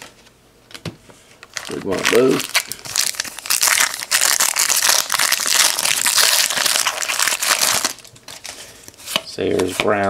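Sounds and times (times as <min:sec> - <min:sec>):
foil wrapper crinkling: 0:01.4 - 0:09.0.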